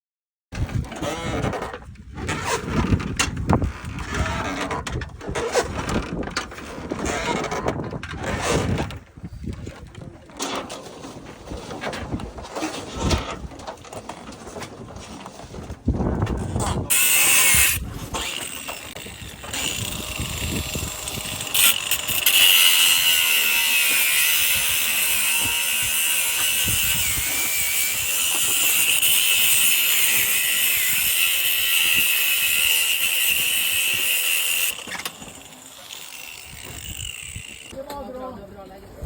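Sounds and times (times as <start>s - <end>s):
angle grinder cutting metal: 16.9s - 37.8s.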